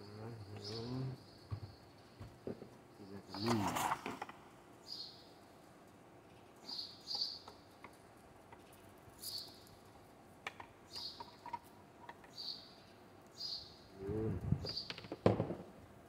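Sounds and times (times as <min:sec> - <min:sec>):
small bird chirping: 0:00.0 - 0:04.0, 0:04.8 - 0:05.4, 0:06.5 - 0:08.0, 0:08.6 - 0:09.9, 0:10.7 - 0:15.2.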